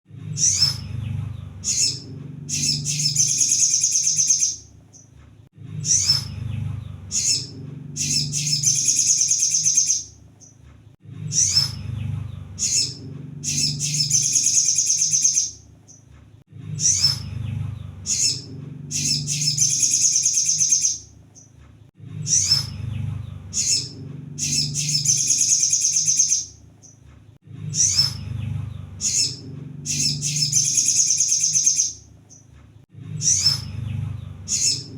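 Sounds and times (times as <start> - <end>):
low rumble: 0.1 - 3.4, 5.4 - 8.9, 10.9 - 14.4, 15.6 - 19.9, 21.9 - 25.3, 27.4 - 30.8, 32.8 - 34.9
bird chirping and trilling: 0.2 - 5.1, 5.7 - 10.6, 11.2 - 16.1, 16.7 - 21.6, 22.2 - 27.0, 27.6 - 32.5, 33.2 - 34.9.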